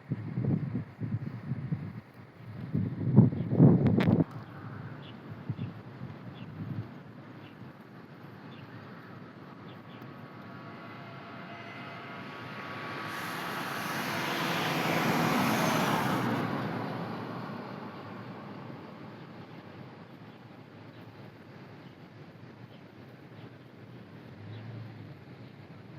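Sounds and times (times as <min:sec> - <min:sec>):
vehicle passing by: 0:08.9 - 0:19.5.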